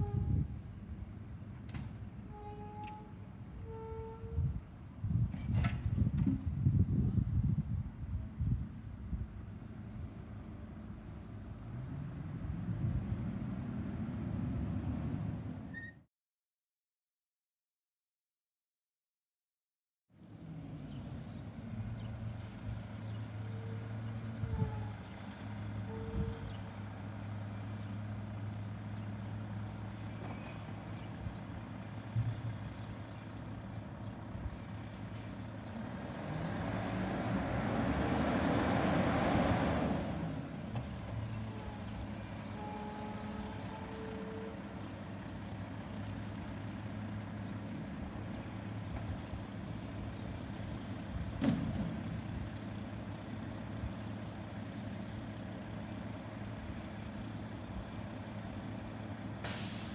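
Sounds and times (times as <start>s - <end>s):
diesel engine humming: 6.6s - 15.8s, 20.2s - 59.9s.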